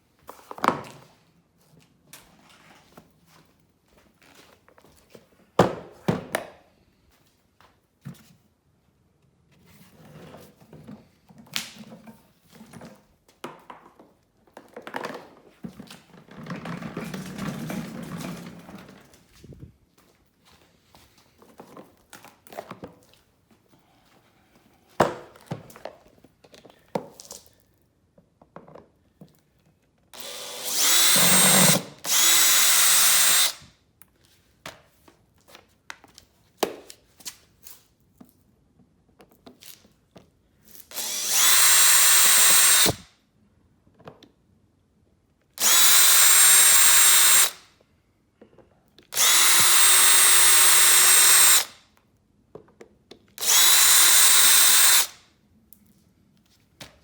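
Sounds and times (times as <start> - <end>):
electric drill whining: 30.2 - 33.7, 40.9 - 43.1, 45.6 - 47.6, 49.1 - 51.8, 53.4 - 55.2.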